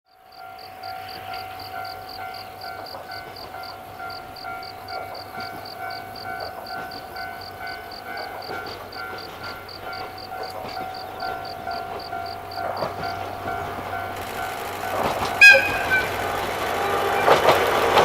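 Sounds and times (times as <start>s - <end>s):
rapid high-pitched pulsing: 11.4s - 18.0s
level crossing alarm tone: 14.2s - 18.0s.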